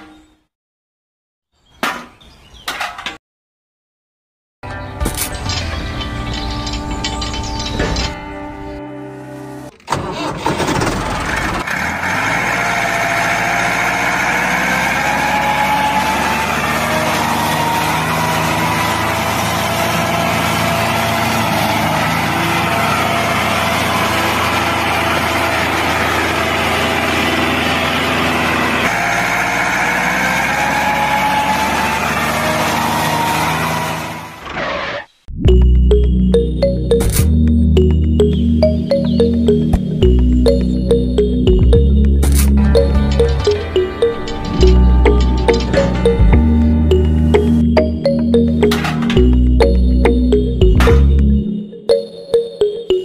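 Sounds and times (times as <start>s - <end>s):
tractor engine idling: 18.1s - 28.9s, 37.8s - 51.4s.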